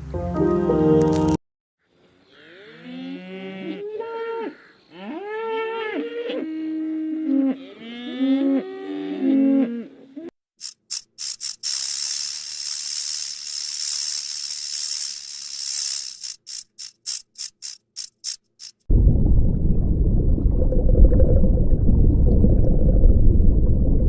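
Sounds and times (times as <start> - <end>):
cattle mooing: 2.3 - 9.9.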